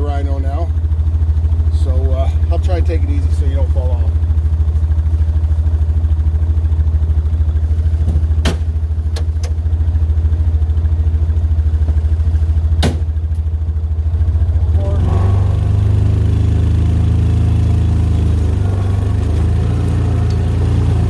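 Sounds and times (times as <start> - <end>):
engine running at low speed: 0.0 - 21.0
sharp knocks: 12.8 - 13.1.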